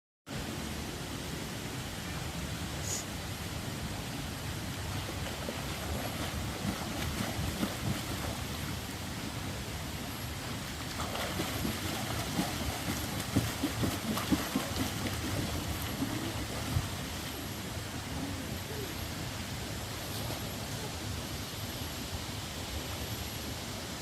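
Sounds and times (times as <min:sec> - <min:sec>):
rushing water: 0:00.3 - 0:24.0
water splashing and sloshing: 0:03.8 - 0:18.3.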